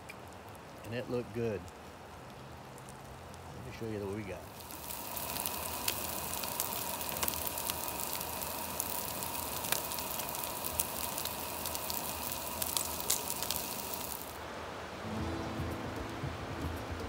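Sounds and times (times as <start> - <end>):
food sizzling on a griddle: 3.8 - 14.4.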